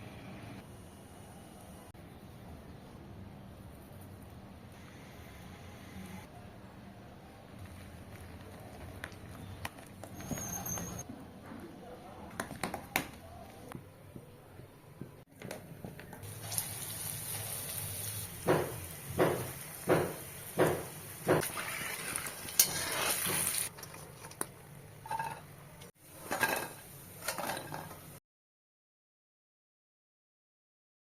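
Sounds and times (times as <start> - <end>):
food sizzling in hot oil: 16.2 - 23.7
kitchen utensils clinking: 25.0 - 25.5, 26.2 - 28.1.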